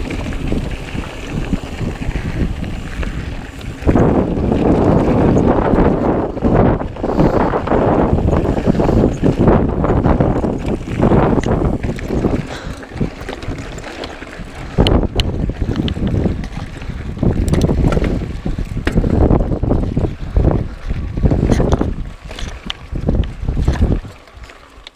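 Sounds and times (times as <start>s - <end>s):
bike clicks and knocks: 0.0s - 20.1s, 20.8s - 24.9s
wind buffeting microphone: 0.0s - 24.9s.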